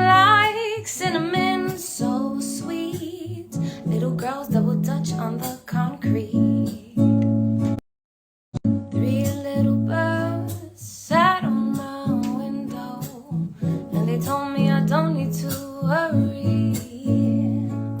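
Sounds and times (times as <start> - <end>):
strummed acoustic guitar: 0.0 - 7.8, 8.6 - 18.0
person singing: 9.0 - 18.0.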